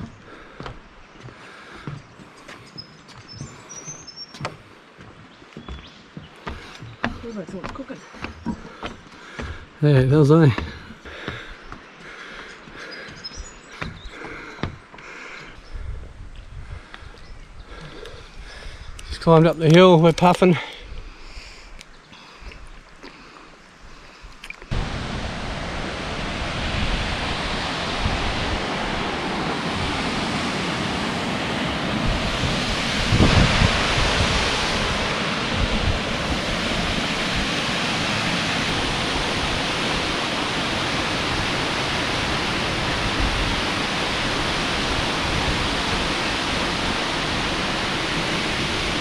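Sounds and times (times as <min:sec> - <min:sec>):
waterfall rushing: 0:24.7 - 0:49.0.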